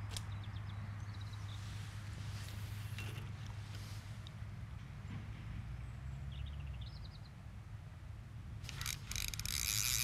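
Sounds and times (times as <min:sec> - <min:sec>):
run of sharp clicks: 0:08.6 - 0:10.0.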